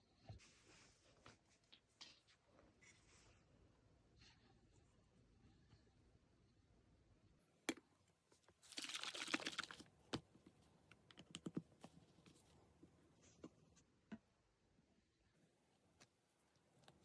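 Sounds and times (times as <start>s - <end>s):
small hard objects clicking: 8.7s - 9.8s.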